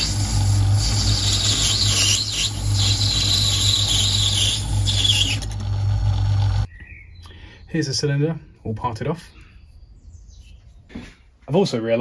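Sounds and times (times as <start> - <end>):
high squeal of lathe cutting metal: 0.0 - 5.6
lathe motor humming: 0.0 - 6.7.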